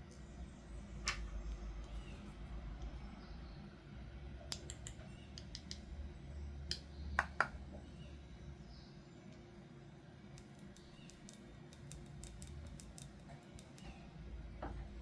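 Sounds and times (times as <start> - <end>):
low steady hum: 0.0 - 15.0
plastic toy pieces clicking: 10.4 - 13.9.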